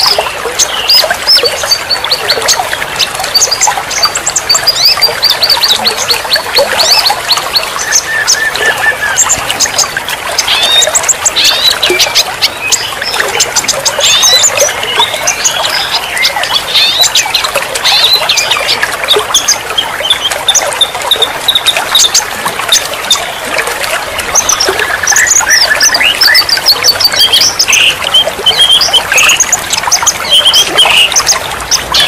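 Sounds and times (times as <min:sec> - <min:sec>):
running splashing water: 0:00.0 - 0:32.0
songbirds chirping and trilling: 0:00.0 - 0:32.0.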